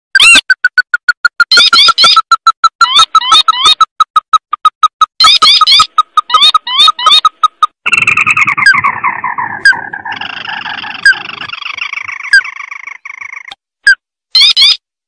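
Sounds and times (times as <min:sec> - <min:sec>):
bird chattering trill: 0:00.2 - 0:13.6, 0:14.4 - 0:14.8
short rising bird chirps: 0:05.2 - 0:13.6
sharp high bird notes: 0:07.9 - 0:13.5.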